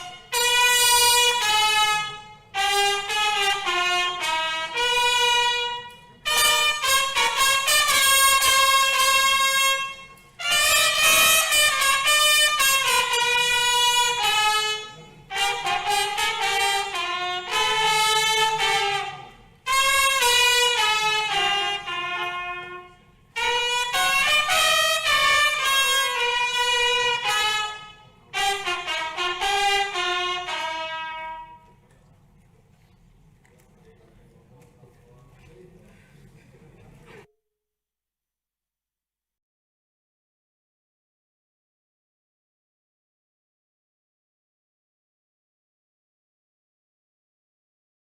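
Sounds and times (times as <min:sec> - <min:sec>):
trumpet melody: 0:00.0 - 0:31.9.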